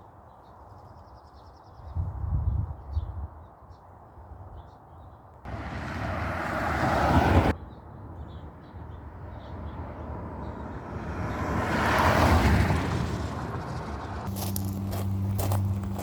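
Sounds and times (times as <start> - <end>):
cars passing by: 5.5 - 16.0.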